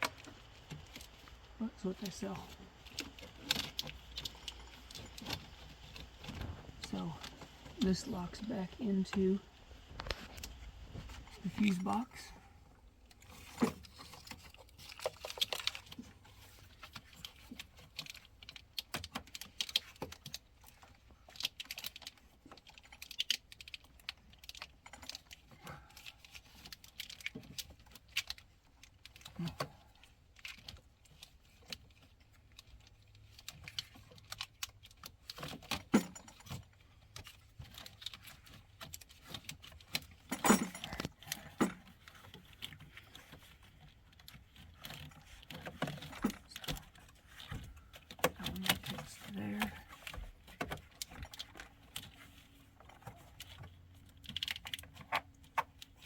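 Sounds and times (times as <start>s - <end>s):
cable connector clicks and rattles: 13.0s - 56.0s.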